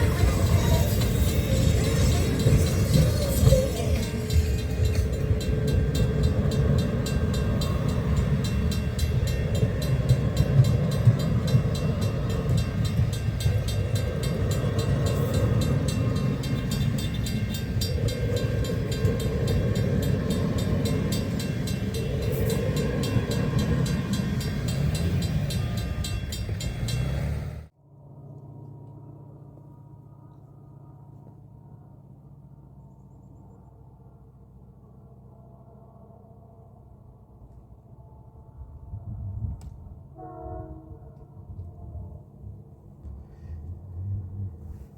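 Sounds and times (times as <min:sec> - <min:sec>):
train wheels rumbling on rail: 0:00.0 - 0:27.7, 0:38.6 - 0:44.9.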